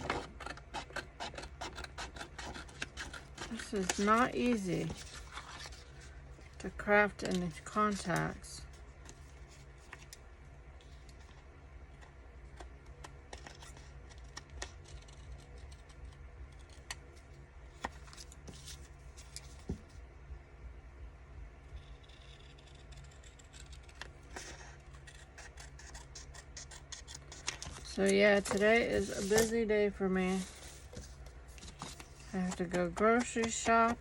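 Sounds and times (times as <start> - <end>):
scissors snipping paper: 0.0 - 5.9, 12.5 - 17.0, 21.8 - 29.6, 31.6 - 34.0
paper being handled: 0.0 - 8.2, 24.3 - 34.0.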